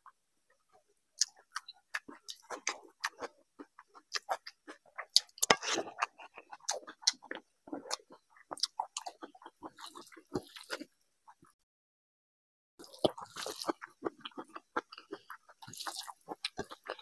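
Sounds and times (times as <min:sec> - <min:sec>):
wet chewing: 0:00.7 - 0:11.0, 0:12.8 - 0:17.0
fingers squelching in rice: 0:15.6 - 0:16.8.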